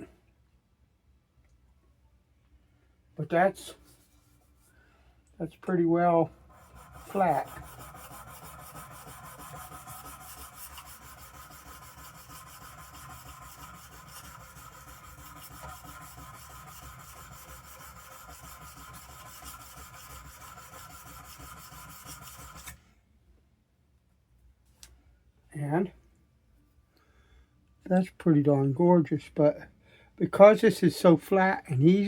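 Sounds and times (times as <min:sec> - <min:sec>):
blade scraping on sharpening stone: 0:06.6 - 0:22.7.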